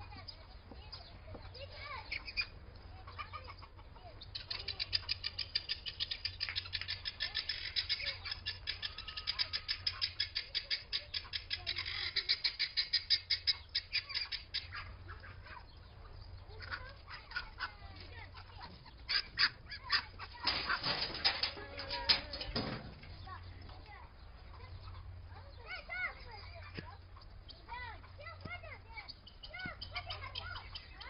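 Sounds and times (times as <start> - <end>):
bird rapid chattering call: 4.2 - 15.6, 28.9 - 31.0.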